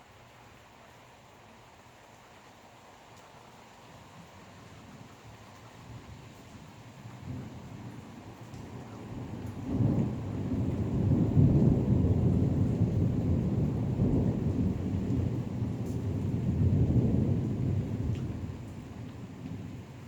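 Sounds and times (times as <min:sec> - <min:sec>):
rolling thunder: 0:07.2 - 0:19.8.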